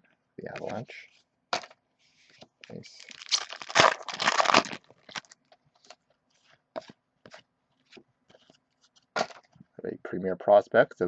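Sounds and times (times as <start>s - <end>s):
cards tapping and rustling: 0.5s - 0.8s, 4.6s - 9.6s
wrapper crinkling and tearing: 2.8s - 6.0s.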